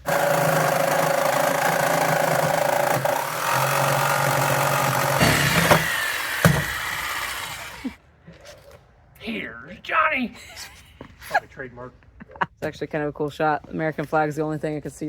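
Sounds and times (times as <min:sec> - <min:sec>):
electric saw cutting: 0:00.0 - 0:08.0
sharp knocks: 0:04.9 - 0:07.6.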